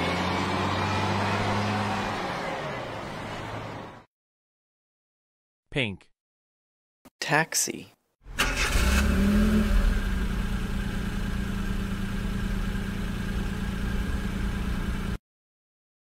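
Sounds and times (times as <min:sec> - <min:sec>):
car engine running: 0:08.3 - 0:15.2.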